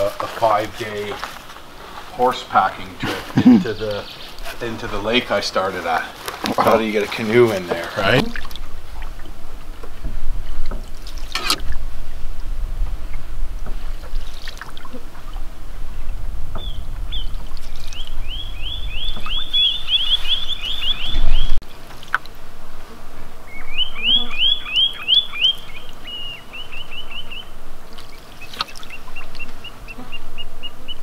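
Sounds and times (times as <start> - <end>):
songbird trills: 3.7 - 4.5, 16.5 - 21.6, 23.5 - 31.0
water trickling: 5.0 - 9.4, 10.6 - 11.8, 14.0 - 15.4, 17.0 - 18.2, 27.8 - 29.5.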